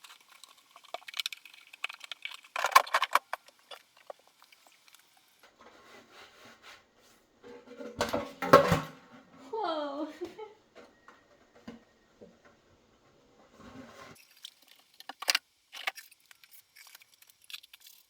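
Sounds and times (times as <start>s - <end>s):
objects clicking and rattling: 0.0s - 5.7s.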